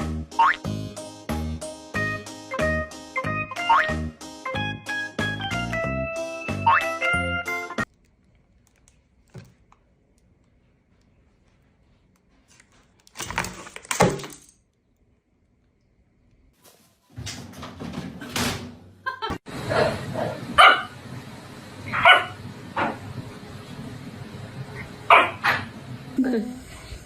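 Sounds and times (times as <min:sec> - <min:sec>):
dog barking: 0:19.7 - 0:21.0, 0:21.9 - 0:23.0, 0:25.1 - 0:25.7.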